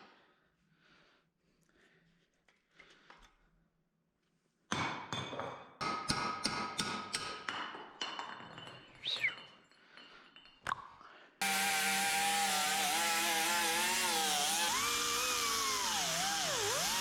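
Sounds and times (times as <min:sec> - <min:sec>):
hand tools striking steel: 0:11.4 - 0:17.0.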